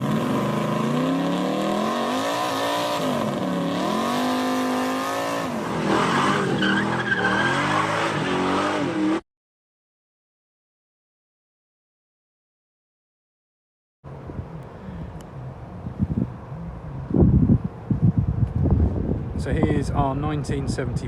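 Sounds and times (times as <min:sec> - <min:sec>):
car engine revving: 0:00.0 - 0:09.2
tire squeal screech: 0:05.4 - 0:09.2.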